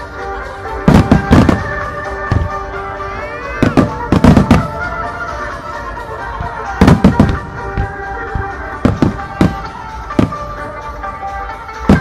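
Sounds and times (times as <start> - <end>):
music: 0.0 - 12.0
fireworks bursting in sharp bangs: 0.7 - 5.0, 6.4 - 10.8, 11.8 - 12.0.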